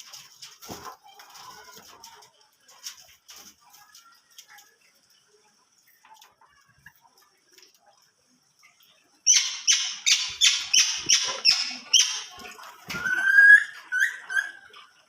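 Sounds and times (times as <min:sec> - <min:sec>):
faint high bird chirping: 0:09.3 - 0:12.4.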